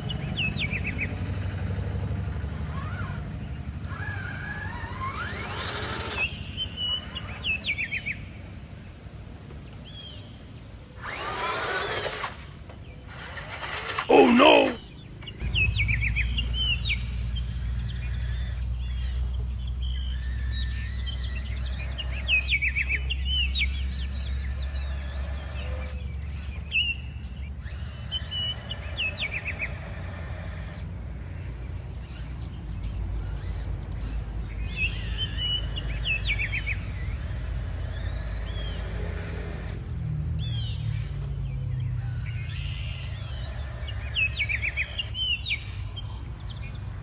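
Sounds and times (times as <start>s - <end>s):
birds chirping: 2.6s - 29.8s, 40.4s - 47.0s
steady low rumble: 15.3s - 18.9s.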